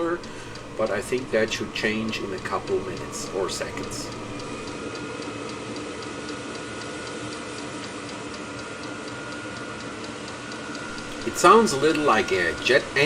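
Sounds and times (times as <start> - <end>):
air heater fan whooshing: 0.0 - 4.8, 10.9 - 13.0
fuel pump ticking: 0.0 - 4.8, 10.9 - 13.0.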